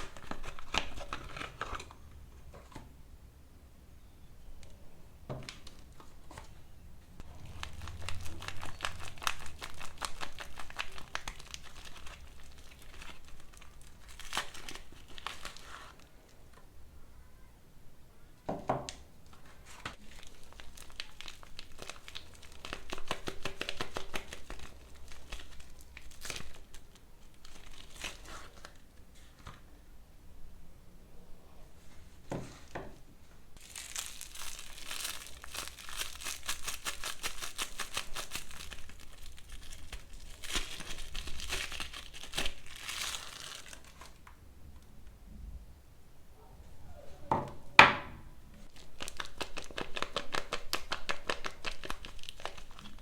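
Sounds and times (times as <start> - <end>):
packaging crinkling and tearing: 0.0 - 2.0, 7.2 - 16.1, 19.4 - 29.6, 33.6 - 44.4, 48.6 - 53.0.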